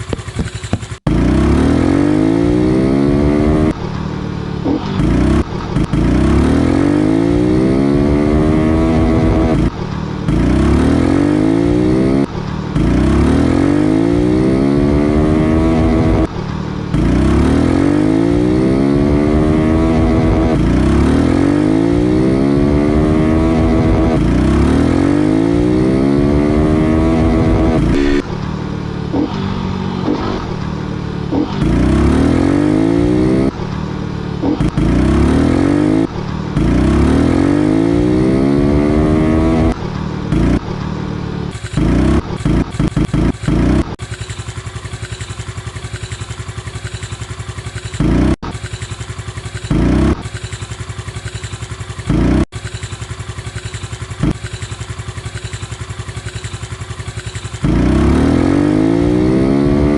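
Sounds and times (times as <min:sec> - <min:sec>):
motorcycle engine idling: 0:00.0 - 0:01.2, 0:39.6 - 0:58.2
motorcycle engine accelerating: 0:00.0 - 0:59.9.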